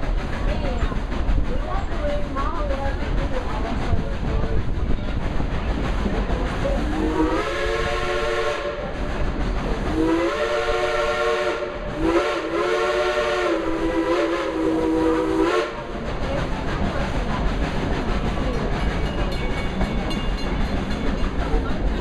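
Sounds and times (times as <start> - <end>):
moving train rumble: 0.0 - 22.0
steam locomotive chime whistle: 7.0 - 8.8, 10.0 - 15.8.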